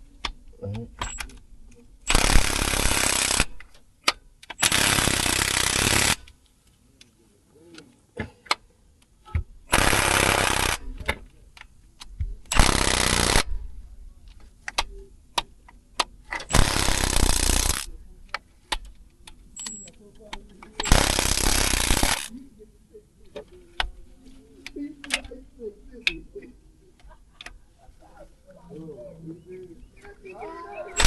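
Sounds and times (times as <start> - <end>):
impact wrench bursts: 2.1 - 6.3, 9.7 - 10.9, 12.5 - 13.6, 16.4 - 17.9, 20.8 - 22.3.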